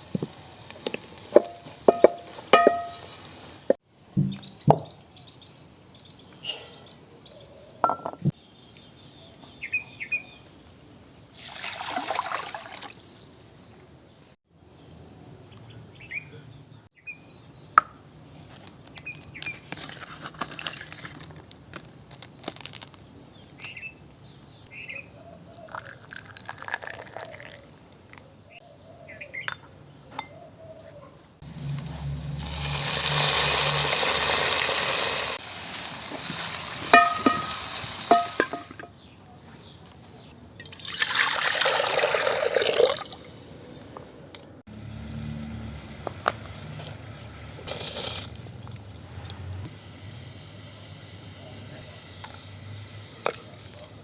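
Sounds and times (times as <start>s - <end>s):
food frying hiss: 0.0s - 3.8s, 31.4s - 38.9s, 44.8s - 54.0s
liquid pouring: 11.4s - 13.0s, 25.7s - 27.6s, 31.4s - 38.8s, 40.6s - 43.3s.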